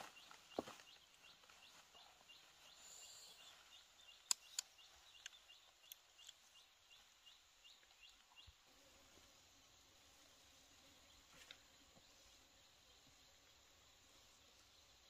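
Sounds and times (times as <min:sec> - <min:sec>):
faint bird chirping: 0:00.0 - 0:15.0
sharp clicks: 0:04.1 - 0:06.4.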